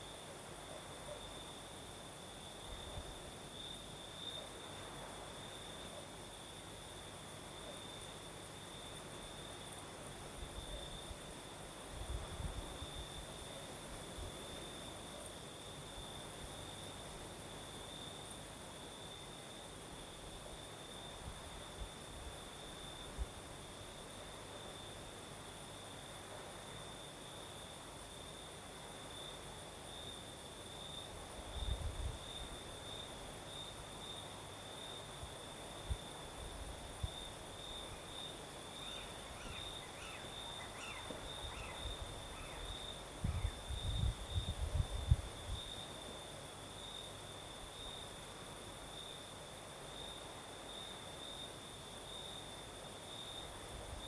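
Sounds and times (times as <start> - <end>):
crickets trilling: 0.0 - 54.0
high insect hiss: 0.0 - 54.0
wind rumbling on microphone: 11.9 - 13.3, 31.4 - 32.6, 41.2 - 45.8
wind buffeting microphone: 43.2 - 45.7.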